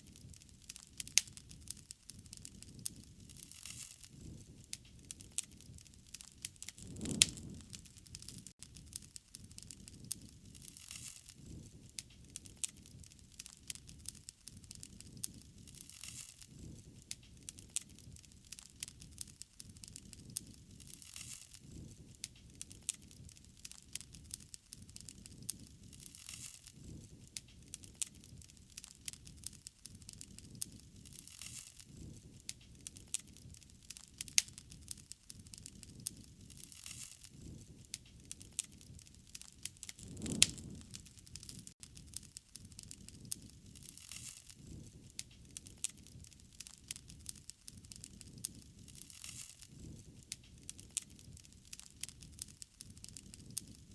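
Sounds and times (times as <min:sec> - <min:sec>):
wood fire crackling: 0:00.0 - 0:53.9
soft rushing swell: 0:06.8 - 0:07.7, 0:40.0 - 0:41.0.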